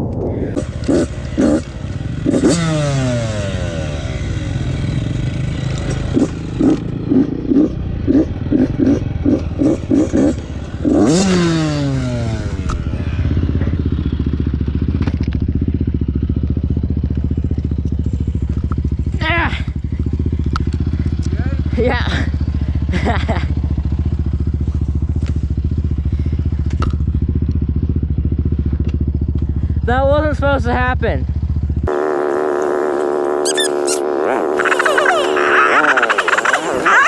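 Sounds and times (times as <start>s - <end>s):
two-stroke engine revving: 0.6s - 15.3s, 31.7s - 37.0s.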